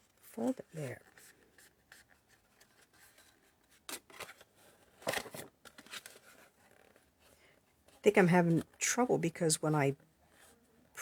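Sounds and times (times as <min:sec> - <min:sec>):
paper crinkles: 0:00.0 - 0:07.3
cardstock rustling and scraping: 0:00.0 - 0:08.8.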